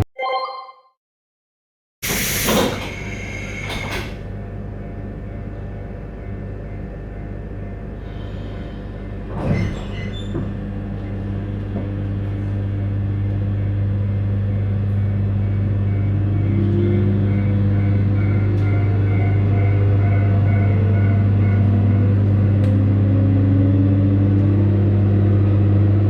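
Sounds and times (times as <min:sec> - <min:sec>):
electric train running hum: 0:02.0 - 0:26.0
rising motor whine: 0:14.9 - 0:26.0.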